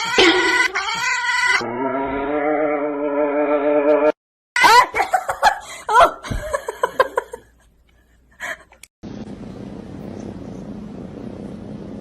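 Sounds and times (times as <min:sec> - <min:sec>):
laughter: 0:04.6 - 0:07.7.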